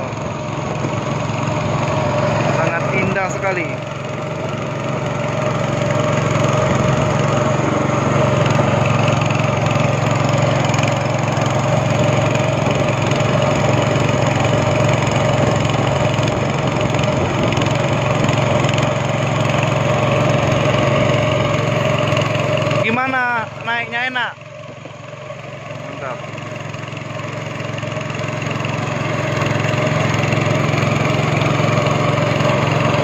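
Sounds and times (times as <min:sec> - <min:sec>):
speedboat engine drone: 0:00.0 - 0:33.0.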